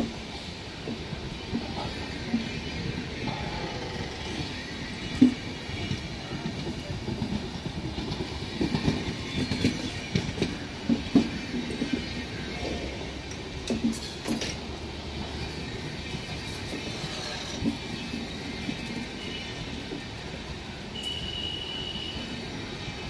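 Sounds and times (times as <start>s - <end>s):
train wheels clattering: 3.2s - 14.8s.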